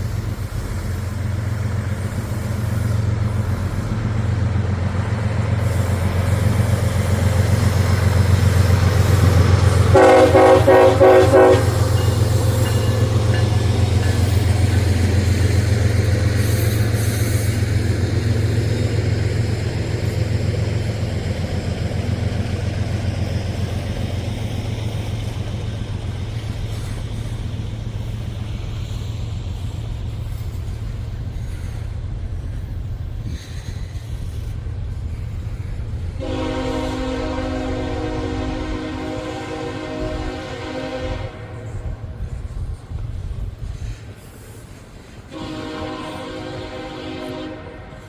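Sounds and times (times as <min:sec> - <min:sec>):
freight train rumble: 0:00.0 - 0:48.0
locomotive horn: 0:09.8 - 0:13.4, 0:36.2 - 0:42.0, 0:45.3 - 0:48.0.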